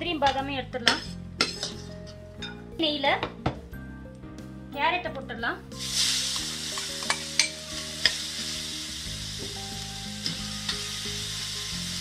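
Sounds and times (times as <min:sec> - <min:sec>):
metal spatula scraping a pan: 0:00.8 - 0:02.2
carrot sizzling in a pan: 0:05.8 - 0:12.0.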